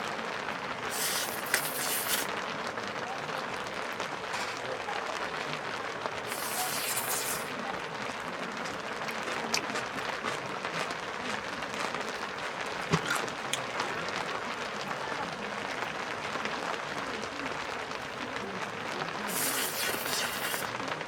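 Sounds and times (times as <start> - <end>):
rain on tent fabric: 0.0 - 21.0
brief high hiss: 0.9 - 2.3, 6.3 - 7.5, 19.3 - 20.7.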